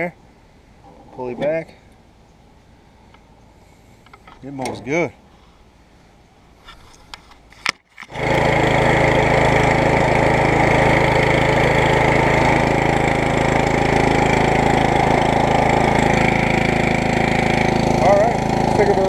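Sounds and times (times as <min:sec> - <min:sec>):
lawn tractor engine running: 0:08.0 - 0:19.0.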